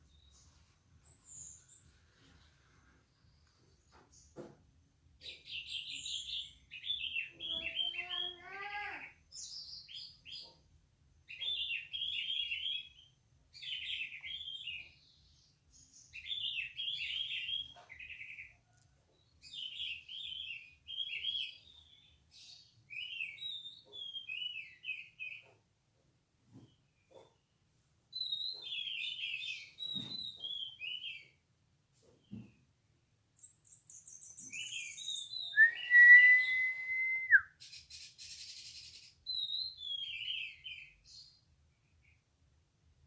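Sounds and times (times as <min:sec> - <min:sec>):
lower rising bird call: 0:34.8 - 0:37.4.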